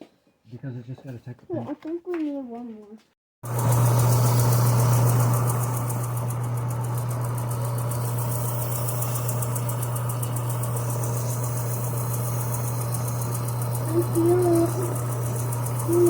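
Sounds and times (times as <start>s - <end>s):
power sander on metal: 3.5s - 16.0s.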